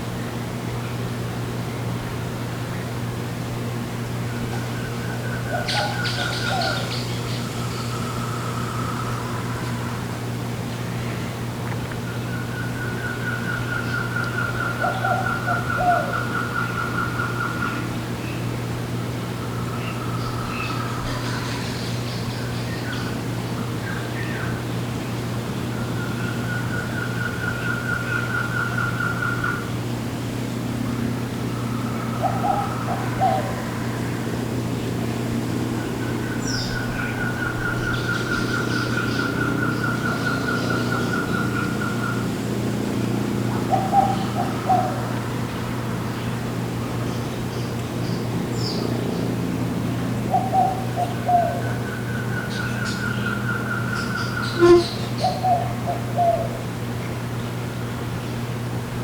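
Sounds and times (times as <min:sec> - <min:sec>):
jungle birds calling: 0:04.3 - 0:10.0, 0:35.8 - 0:45.6, 0:50.3 - 0:56.6
bird trilling: 0:54.4 - 0:55.4
short low bird calls: 0:54.4 - 0:55.4
short loud low note: 0:54.6 - 0:54.9
faint high chirps: 0:54.6 - 0:55.1.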